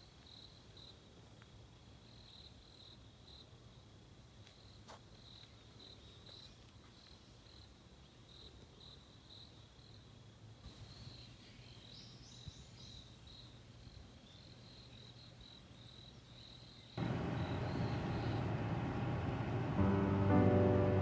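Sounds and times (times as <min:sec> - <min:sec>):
faint low hum: 0:17.0 - 0:21.0
insects chirping in pulses: 0:17.0 - 0:21.0.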